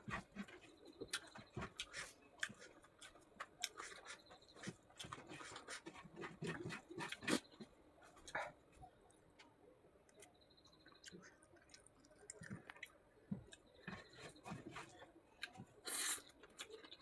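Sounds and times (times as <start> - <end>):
wet chewing and lip-smacking: 0.4 - 8.4, 10.8 - 14.5.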